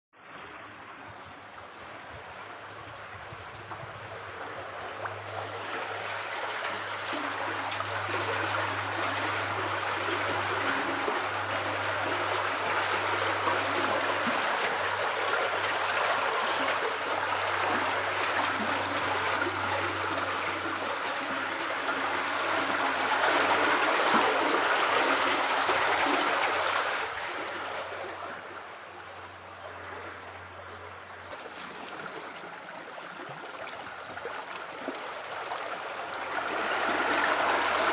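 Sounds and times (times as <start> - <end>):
water babbling: 0.2 - 37.9.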